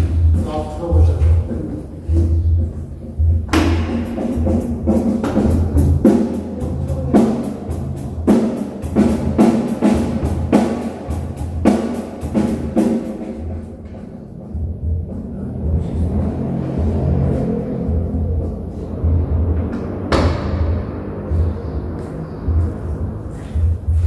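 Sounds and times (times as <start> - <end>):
drum and cymbal hits: 0.0 - 13.7
steady low bass: 0.0 - 24.0.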